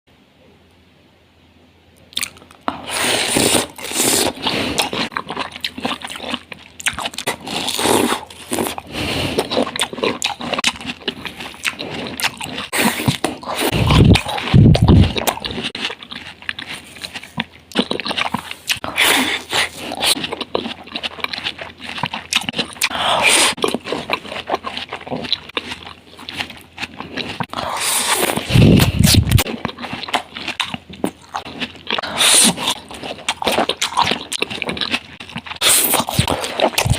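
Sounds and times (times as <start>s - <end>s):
watermelon being bitten: 2.1s - 36.9s
wet chewing: 2.1s - 36.9s.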